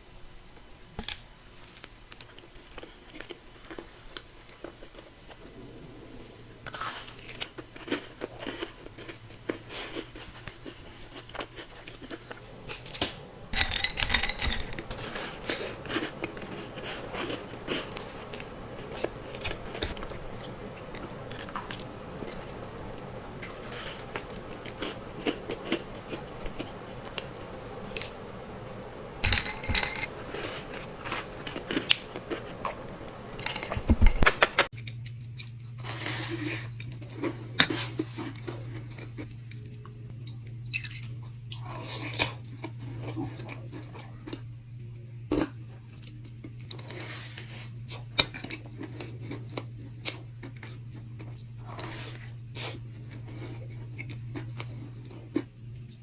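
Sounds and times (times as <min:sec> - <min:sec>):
low steady hum: 0:00.0 - 0:56.0
crunchy bites and wet chewing: 0:06.7 - 0:39.6.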